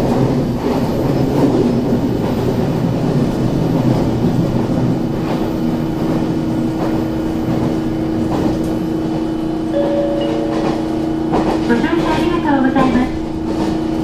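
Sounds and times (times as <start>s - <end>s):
train wheels rumbling on rail: 0.0s - 14.0s
train motor hum: 5.3s - 14.0s
high tone: 9.8s - 11.2s.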